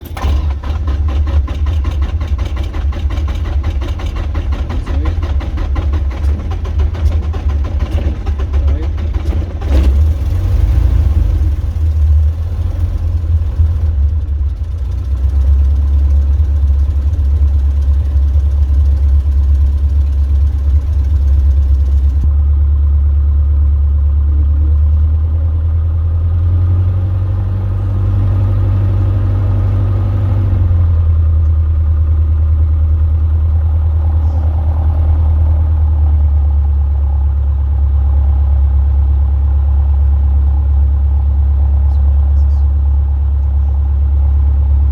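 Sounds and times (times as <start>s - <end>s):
light aircraft engine drone: 0.0s - 10.5s, 11.1s - 26.2s, 31.5s - 38.7s.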